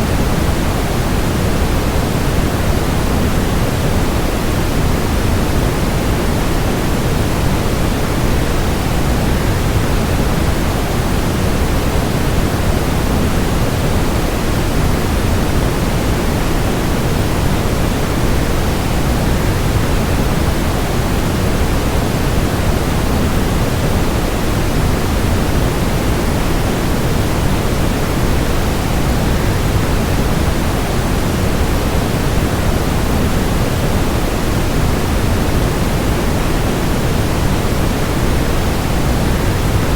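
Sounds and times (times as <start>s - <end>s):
white noise: 0.0s - 39.9s.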